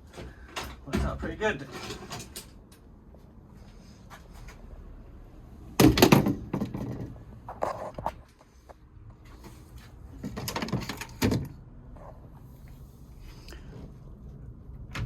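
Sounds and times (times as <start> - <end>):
gear linkage clunk and rattle: 5.8 - 7.1, 10.2 - 11.6.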